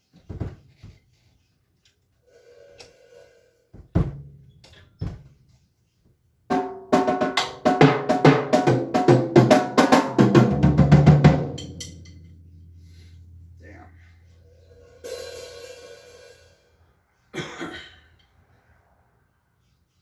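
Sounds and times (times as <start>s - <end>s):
drum and cymbal hits: 6.5s - 13.6s, 14.8s - 16.7s.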